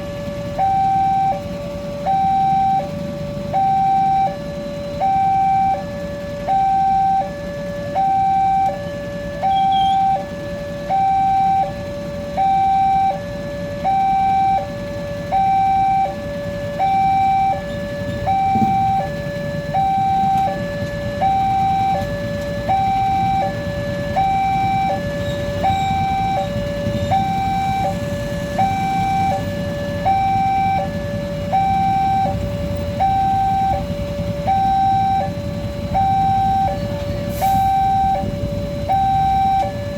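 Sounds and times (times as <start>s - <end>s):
level crossing two-tone alarm: 0.0s - 39.9s
low traffic rumble: 0.0s - 39.9s.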